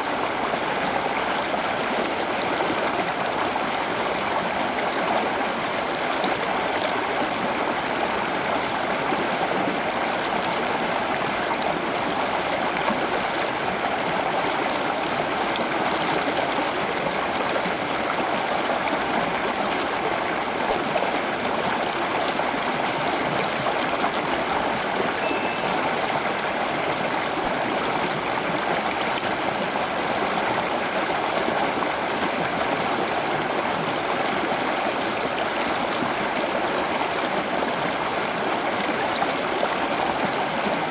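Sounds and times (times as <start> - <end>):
running water: 0.0 - 40.9.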